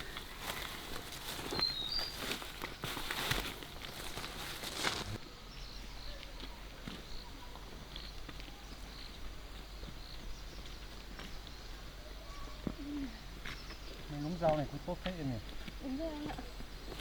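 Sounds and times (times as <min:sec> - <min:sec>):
rustling through vegetation: 0:00.0 - 0:05.8
small birds chirping: 0:00.0 - 0:17.0.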